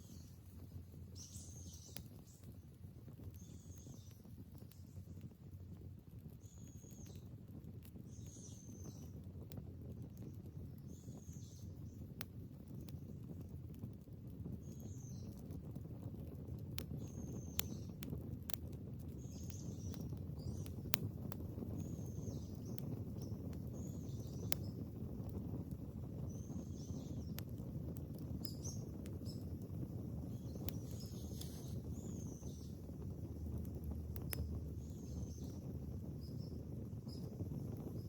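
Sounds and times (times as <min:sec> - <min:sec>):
low steady rumble: 0:19.5 - 0:38.0.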